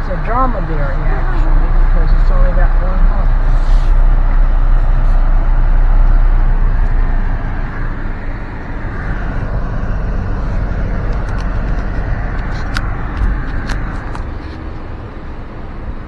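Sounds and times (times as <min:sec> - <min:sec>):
car rumble from inside: 0:00.0 - 0:16.0.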